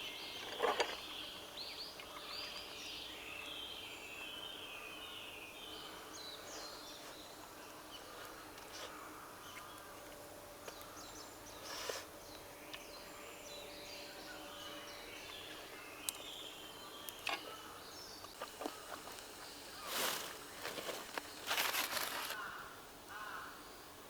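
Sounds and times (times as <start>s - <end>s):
small birds chirping: 0.0s - 23.9s
rustle: 16.1s - 23.9s.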